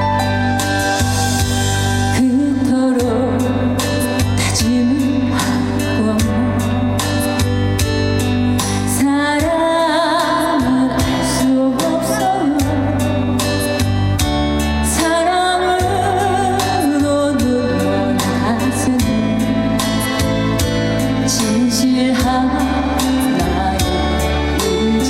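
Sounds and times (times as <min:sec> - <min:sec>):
band with bass and drums: 0:00.0 - 0:25.0
woman singing: 0:02.1 - 0:07.5, 0:08.5 - 0:13.8, 0:14.8 - 0:20.3, 0:21.2 - 0:25.0.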